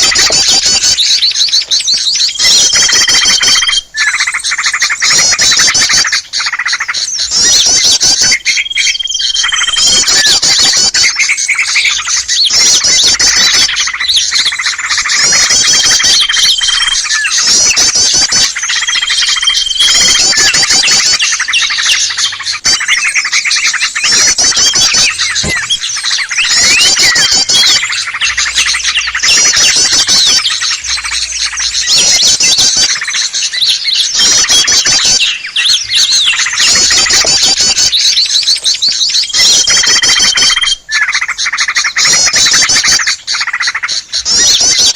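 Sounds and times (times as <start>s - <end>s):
songbirds chattering and chirping: 0.0s - 44.9s.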